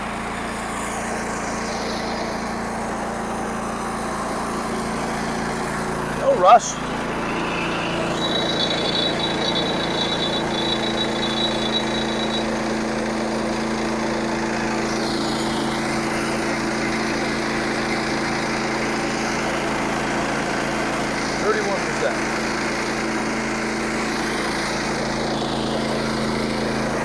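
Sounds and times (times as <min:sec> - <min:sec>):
thin high whine: 0:00.0 - 0:13.0
band sawmill engine running: 0:00.0 - 0:27.0
saw blade cutting log: 0:00.0 - 0:27.0.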